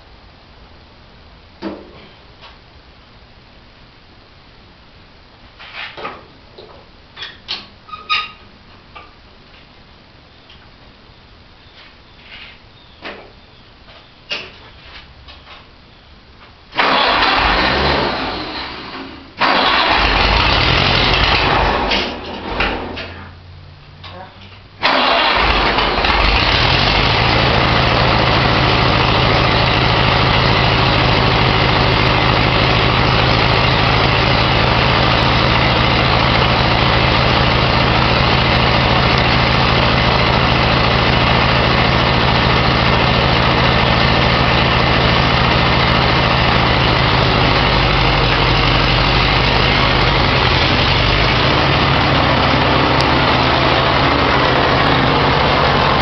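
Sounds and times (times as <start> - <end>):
tractor engine idling: 16.8 - 23.2, 24.8 - 56.0.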